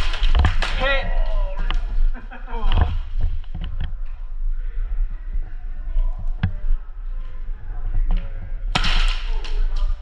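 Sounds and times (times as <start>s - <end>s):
low steady rumble: 1.4s - 8.8s.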